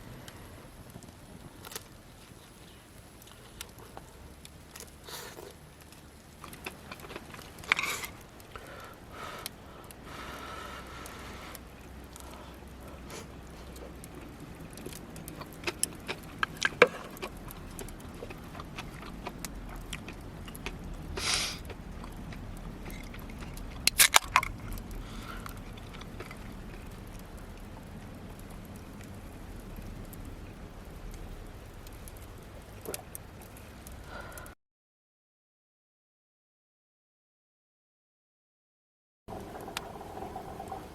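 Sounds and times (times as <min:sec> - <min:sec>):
short hiss: 0:21.2 - 0:21.7
small hard objects clinking: 0:21.7 - 0:26.9.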